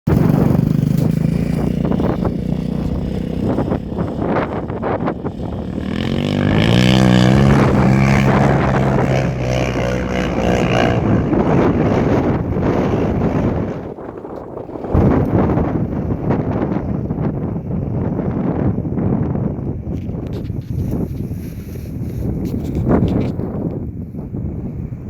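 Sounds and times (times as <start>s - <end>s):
quad engine revving: 0.1s - 15.5s.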